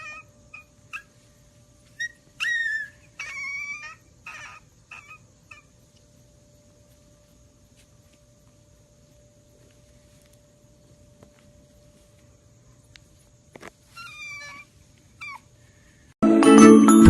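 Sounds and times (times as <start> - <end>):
animal whining and yelping: 0.0 - 1.2, 1.9 - 5.8, 13.9 - 15.6.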